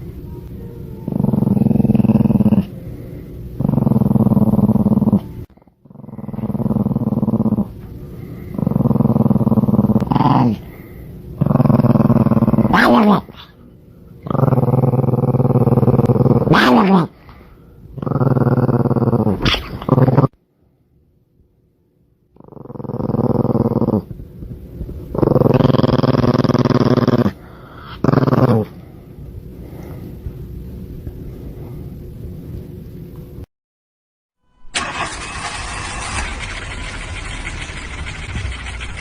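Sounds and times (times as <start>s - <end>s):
dog growling: 1.1s - 2.8s, 3.6s - 13.6s, 14.2s - 20.4s, 22.4s - 24.2s, 24.9s - 28.9s.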